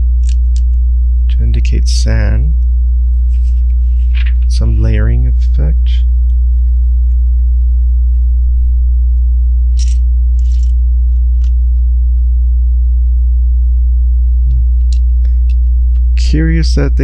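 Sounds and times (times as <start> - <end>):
electrical mains hum: 0.0 - 17.0
plastic bricks clicking and rustling: 9.8 - 10.7.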